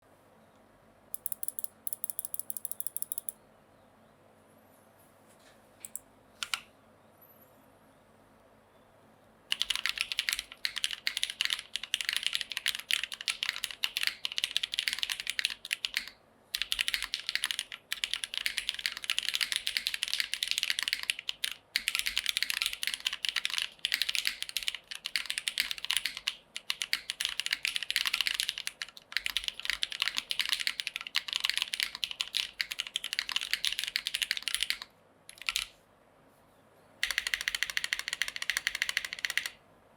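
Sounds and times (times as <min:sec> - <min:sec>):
mechanical keyboard typing: 0:01.2 - 0:03.4, 0:05.8 - 0:06.6, 0:09.5 - 0:35.7, 0:37.0 - 0:39.6.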